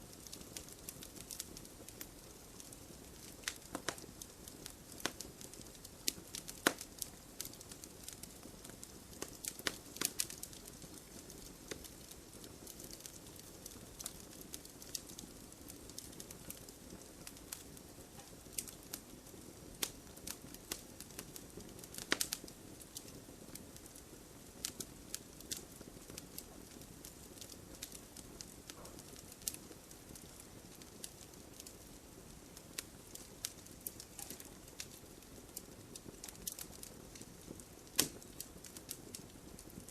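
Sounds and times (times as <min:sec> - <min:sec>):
soft steady fire hiss: 0:00.0 - 0:39.9
wood fire crackling and popping: 0:00.0 - 0:39.9.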